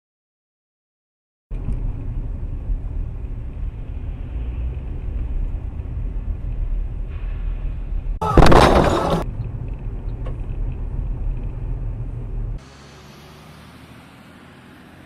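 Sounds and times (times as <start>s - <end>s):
car road and engine rumble: 1.5s - 15.0s
loud collision crash: 8.2s - 9.2s.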